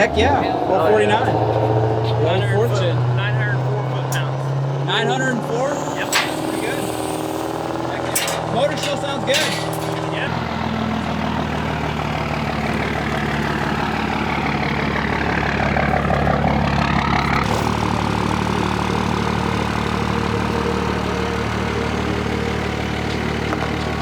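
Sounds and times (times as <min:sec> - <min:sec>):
diesel engine idling: 0:00.0 - 0:24.0
faint whine: 0:05.2 - 0:10.3.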